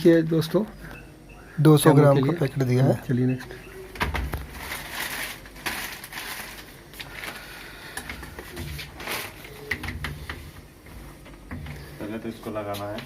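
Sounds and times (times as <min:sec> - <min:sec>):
packaging crinkling and rustling: 0:04.0 - 0:10.0.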